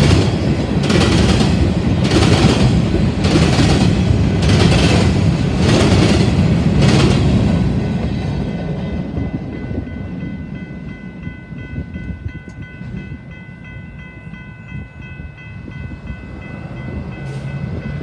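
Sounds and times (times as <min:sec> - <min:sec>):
freight train rumble: 0:00.0 - 0:18.0.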